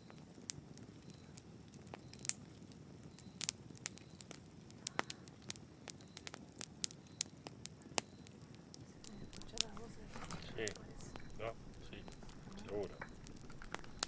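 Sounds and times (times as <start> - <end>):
fire crackling in a fireplace: 0.0 - 14.0.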